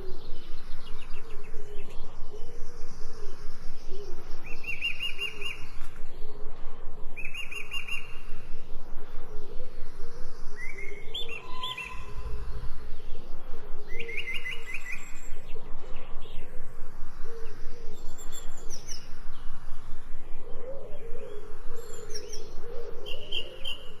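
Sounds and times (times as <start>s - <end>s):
birds chirping: 0.0s - 24.0s
rapid bird trills: 0.0s - 24.0s
low warbling bird call: 9.3s - 16.5s.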